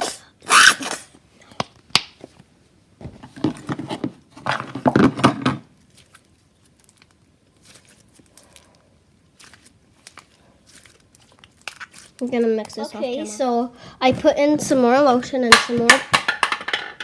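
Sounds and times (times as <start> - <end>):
hands kneading slime: 5.7 - 15.5.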